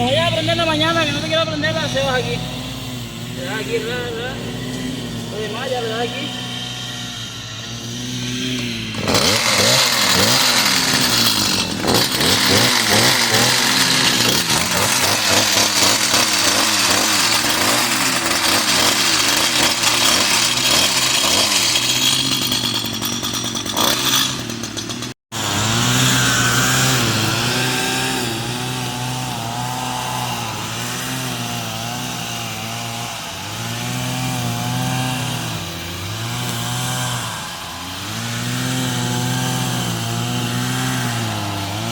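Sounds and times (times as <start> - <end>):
two-stroke engine revving: 0.0 - 41.9.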